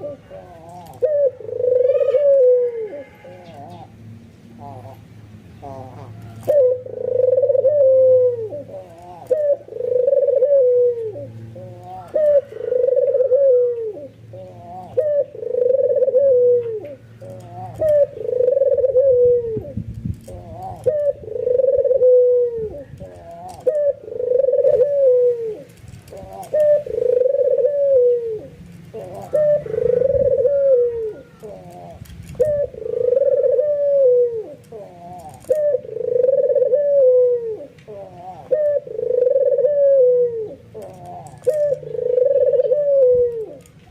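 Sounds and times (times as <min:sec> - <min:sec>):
dove cooing: 0:00.0 - 0:43.9.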